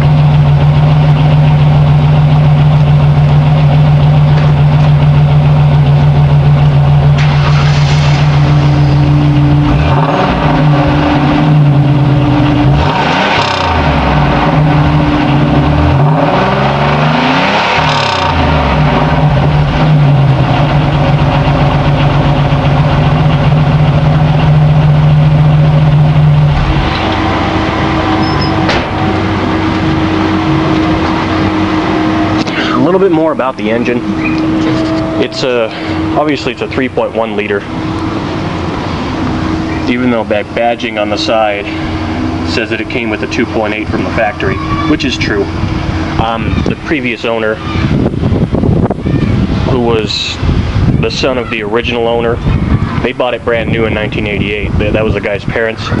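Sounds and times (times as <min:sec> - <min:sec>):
car exhaust idling and revving: 0:00.0 - 0:56.0.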